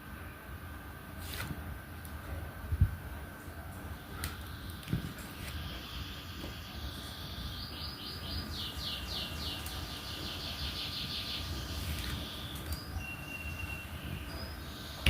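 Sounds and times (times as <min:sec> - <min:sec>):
low background hum: 0:00.0 - 0:15.0
songbird trilling: 0:05.8 - 0:15.0.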